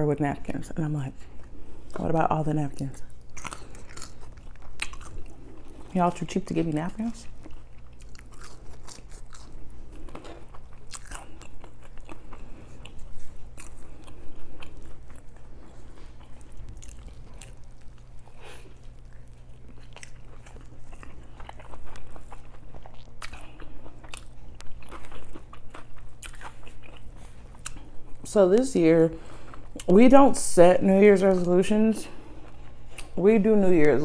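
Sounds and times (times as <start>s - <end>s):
biting and chewing food: 1.3s - 28.3s.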